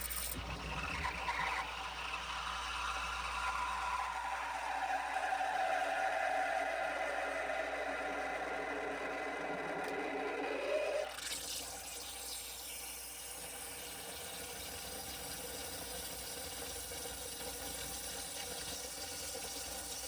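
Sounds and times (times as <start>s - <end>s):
short rising whir: 0.0s - 11.2s.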